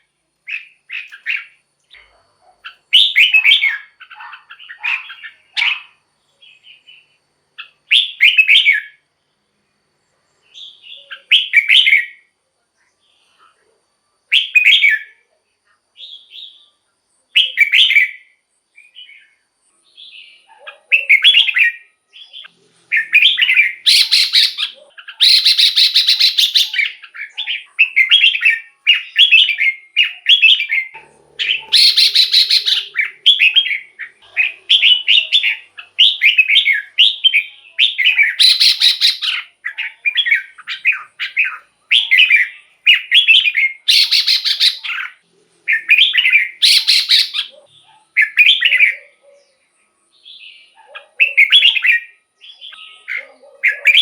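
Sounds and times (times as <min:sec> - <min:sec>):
bulbul singing warbled phrases: 0:00.0 - 0:09.0, 0:19.9 - 0:49.6, 0:50.3 - 0:54.0
harsh scratchy bird calls: 0:00.0 - 0:09.0, 0:20.4 - 0:49.4.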